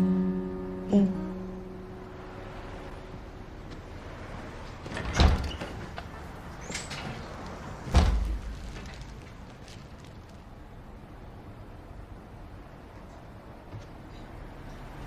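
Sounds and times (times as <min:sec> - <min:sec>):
door heavy thuds: 0:04.8 - 0:06.2, 0:06.9 - 0:08.8.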